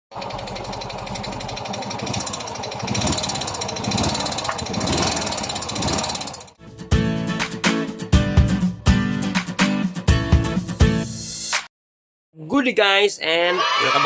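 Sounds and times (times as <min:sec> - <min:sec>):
scooter engine knocking: 0:00.1 - 0:06.6.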